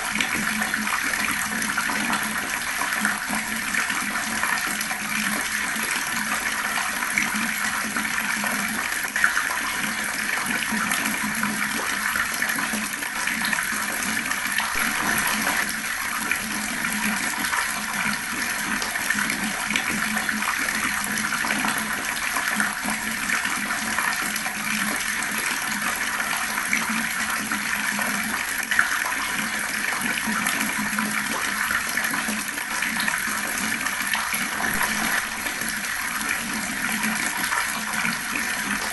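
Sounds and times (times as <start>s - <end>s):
water splashes: 13.3s - 22.9s, 32.2s - 38.9s
fast-flowing water rushing: 14.5s - 22.2s, 32.8s - 38.9s.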